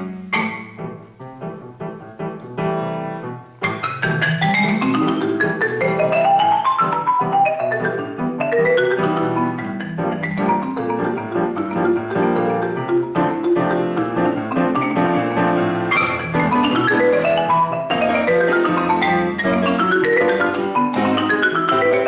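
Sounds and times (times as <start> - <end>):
marimba played fast: 3.6 - 22.0.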